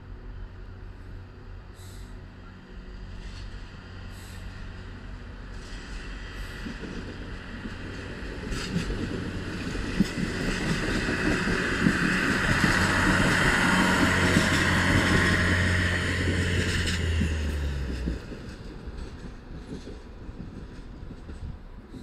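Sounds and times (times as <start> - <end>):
train engine humming: 0.0 - 22.0
wheel and rail noise: 0.0 - 22.0
wheels knocking on rail joints: 6.6 - 22.0.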